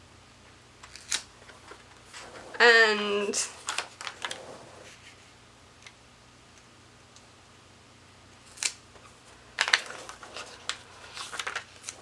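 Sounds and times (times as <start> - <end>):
paper rustling: 0.8 - 5.2, 8.6 - 12.0.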